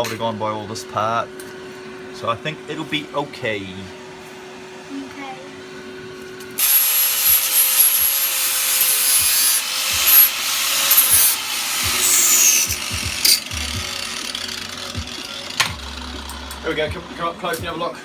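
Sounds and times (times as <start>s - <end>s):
tool abrading metal: 6.6s - 13.6s.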